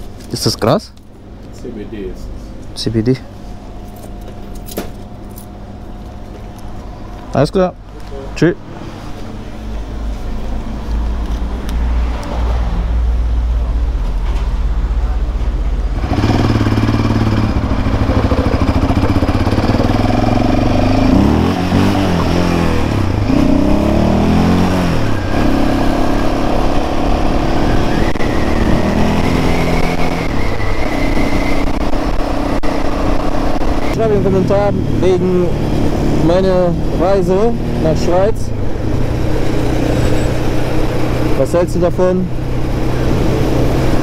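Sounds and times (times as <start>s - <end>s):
quad bike engine revving: 15.9s - 41.6s.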